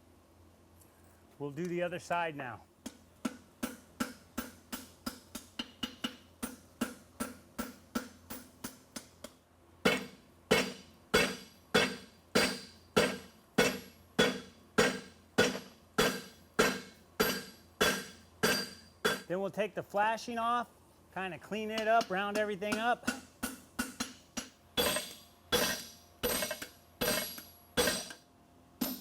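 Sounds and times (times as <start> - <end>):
hammer striking horseshoe on anvil: 2.8 - 9.1, 9.8 - 19.3, 21.8 - 28.2, 28.8 - 29.0.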